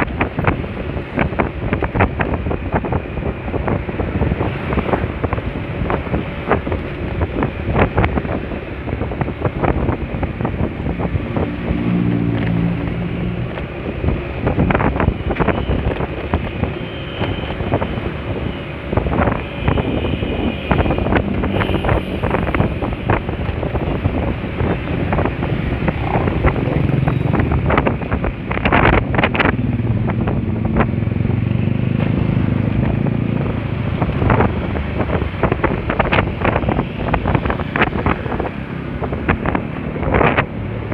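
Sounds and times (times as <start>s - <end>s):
traffic hum: 0.0s - 40.9s
wind buffeting microphone: 0.0s - 40.9s.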